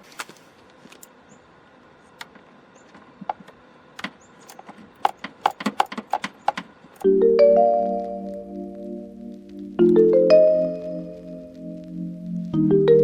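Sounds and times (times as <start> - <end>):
light clicks and knocks: 2.2 - 7.0
marimba background music: 7.0 - 8.8, 9.8 - 11.5, 12.5 - 13.0.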